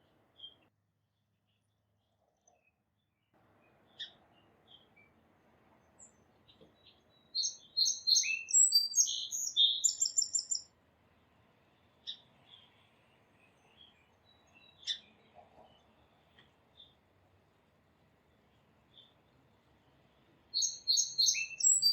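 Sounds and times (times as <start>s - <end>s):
songbird singing with trill: 5.8s - 10.7s, 13.4s - 17.0s, 18.3s - 21.9s.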